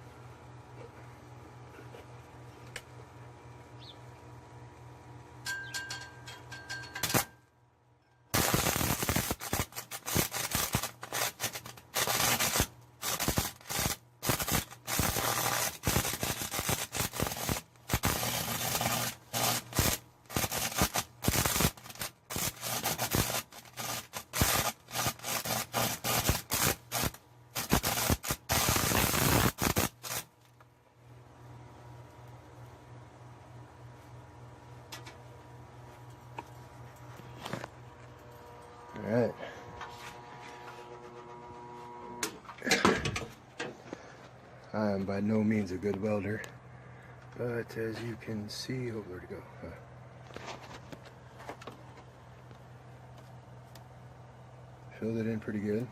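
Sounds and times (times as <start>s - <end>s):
low transformer hum: 0.0s - 55.9s
welding arc crackling: 7.0s - 7.3s, 8.3s - 30.4s.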